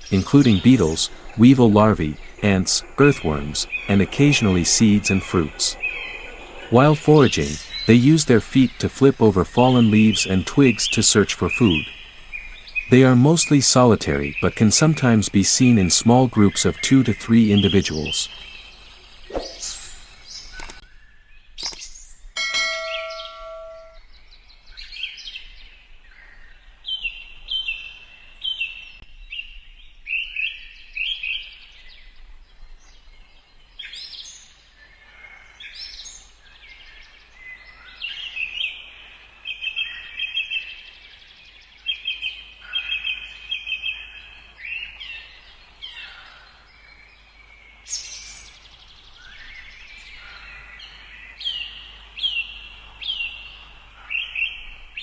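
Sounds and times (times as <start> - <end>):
birds chirping and trilling: 0.0 - 55.0
bell-like chime: 22.4 - 24.0.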